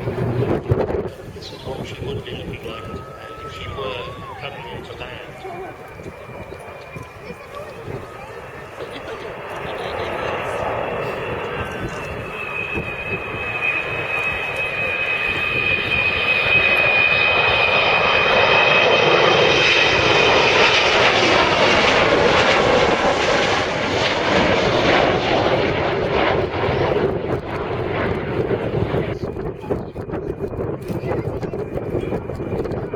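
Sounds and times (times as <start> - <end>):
aircraft engine flying past: 0.0 - 32.9.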